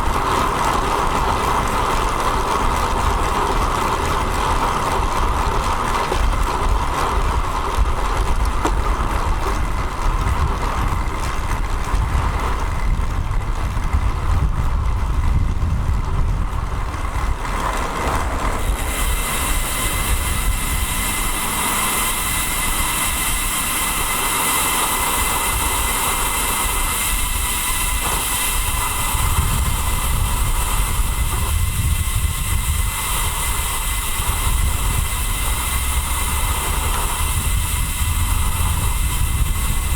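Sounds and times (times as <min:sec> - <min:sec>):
road traffic noise: 0:00.0 - 0:39.9
wind rumble on microphone: 0:00.0 - 0:39.9
bright hiss with high tones: 0:18.7 - 0:39.9.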